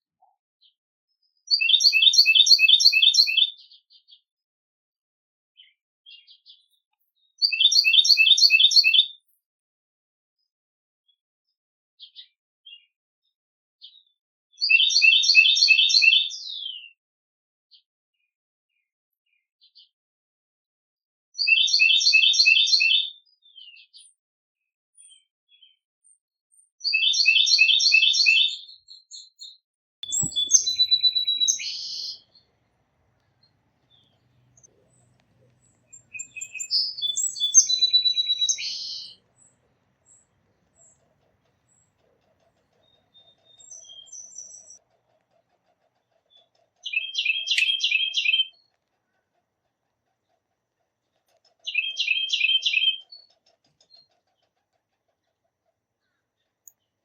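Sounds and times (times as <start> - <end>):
songbird chirping: 1.5 - 3.5, 7.4 - 9.4, 30.0 - 49.4, 51.2 - 54.4.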